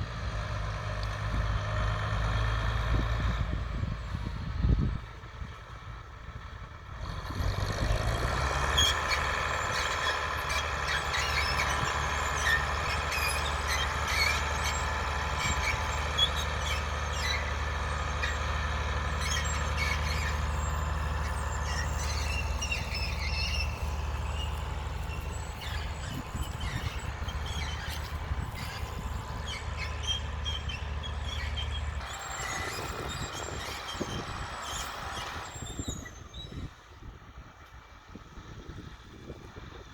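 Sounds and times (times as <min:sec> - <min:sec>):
diesel tractor engine humming: 0:00.0 - 0:39.9
plough squeaking and creaking: 0:07.1 - 0:36.7.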